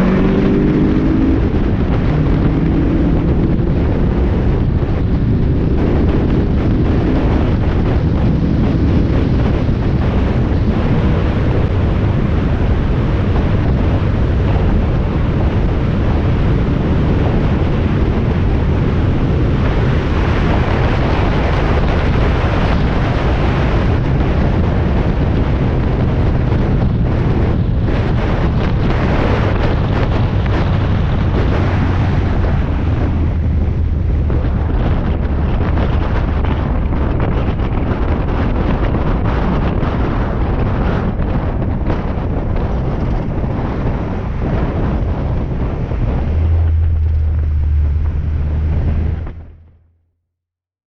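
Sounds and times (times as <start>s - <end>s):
race car engine: 0.0s - 36.5s, 44.1s - 49.8s
wind buffeting microphone: 0.0s - 49.8s.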